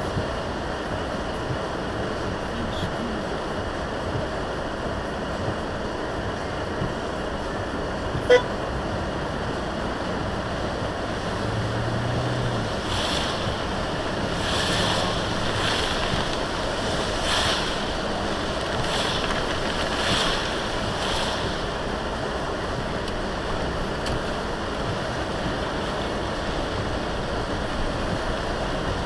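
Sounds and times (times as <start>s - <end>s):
low hum: 0.0s - 29.0s
rain and road noise in vehicle: 0.0s - 29.0s
hissing swishes: 10.4s - 22.0s.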